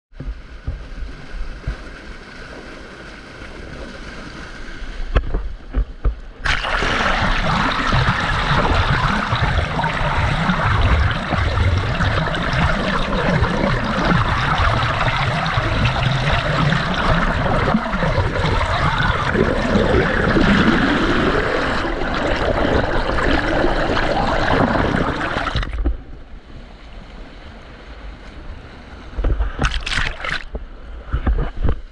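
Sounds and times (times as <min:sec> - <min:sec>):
water rushing underwater: 0:06.3 - 0:26.2, 0:29.2 - 0:30.6.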